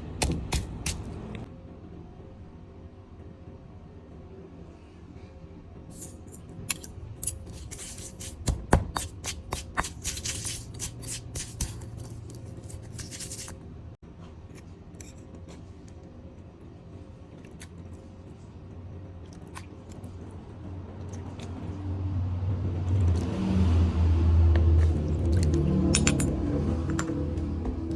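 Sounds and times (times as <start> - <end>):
low hum: 18.1 - 27.9.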